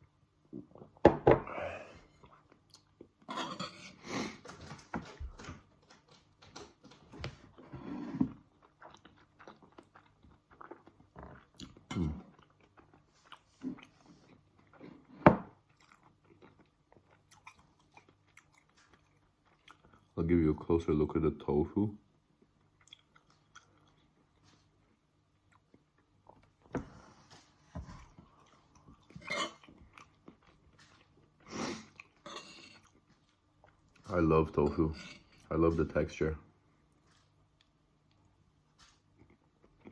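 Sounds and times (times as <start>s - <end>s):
close-up chewing: 8.4s - 20.2s, 22.3s - 34.2s, 36.8s - 39.9s.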